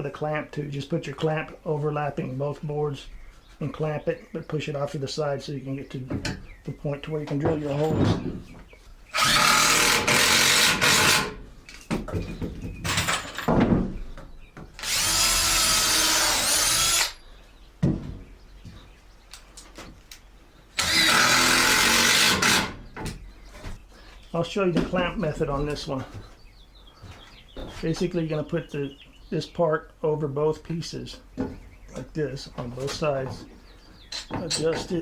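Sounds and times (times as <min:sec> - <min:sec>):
power drill boring wood: 0:09.1 - 0:11.4, 0:14.8 - 0:17.2, 0:20.8 - 0:22.8.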